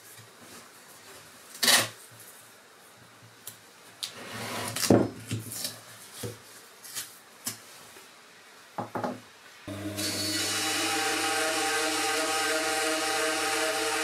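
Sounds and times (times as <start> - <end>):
band saw running: 9.7 - 14.0.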